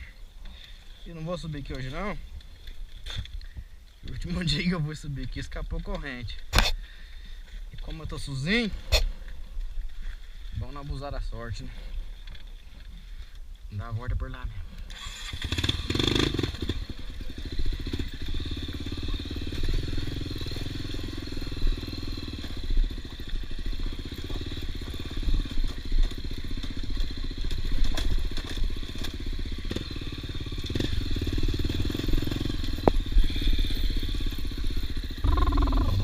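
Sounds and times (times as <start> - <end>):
motorcycle engine running: 15.1 - 36.0.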